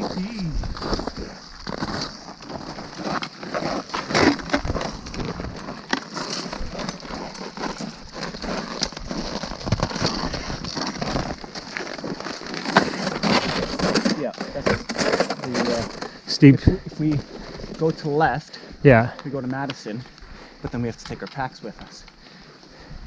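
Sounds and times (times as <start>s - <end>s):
footsteps crunching on snow: 0.0s - 18.2s.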